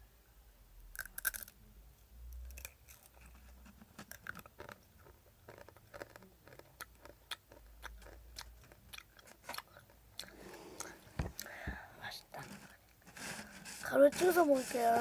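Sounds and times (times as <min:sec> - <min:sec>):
chewing crunchy snack: 0:01.0 - 0:01.6, 0:02.4 - 0:11.5.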